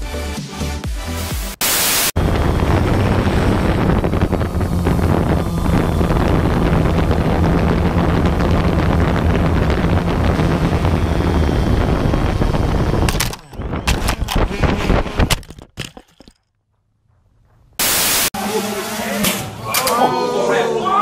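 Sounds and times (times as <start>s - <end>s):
steady low hum: 2.2s - 15.3s
wind blowing across microphone: 2.2s - 15.4s.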